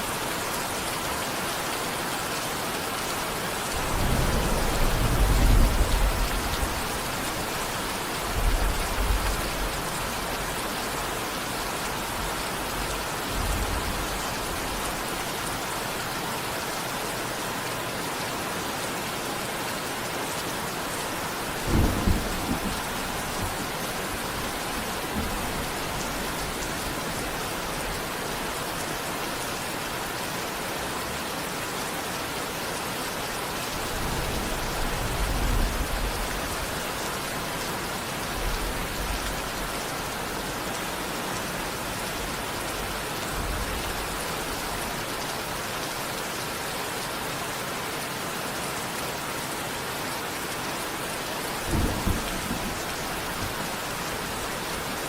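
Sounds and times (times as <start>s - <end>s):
steady rain: 0.0s - 55.0s
thunder rumbling: 3.8s - 9.7s, 21.5s - 27.3s, 51.6s - 55.0s.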